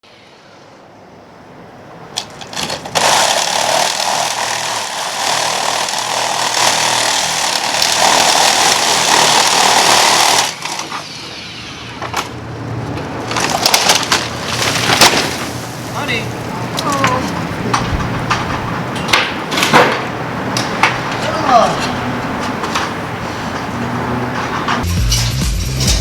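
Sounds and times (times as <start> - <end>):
motorised machine running loudly: 2.5 - 10.9.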